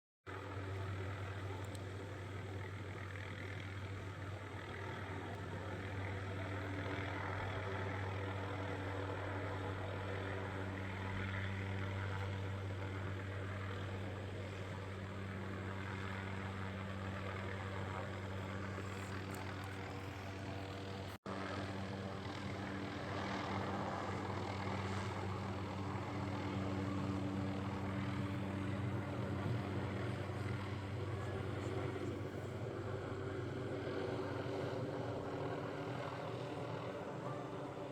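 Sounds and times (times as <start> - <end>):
helicopter rotor and engine: 0.3 - 37.9.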